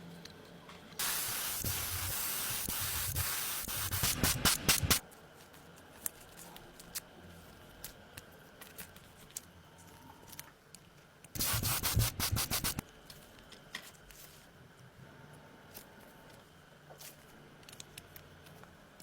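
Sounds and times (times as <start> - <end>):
faint ticks and handling noises: 5.0 - 11.4, 12.8 - 19.0.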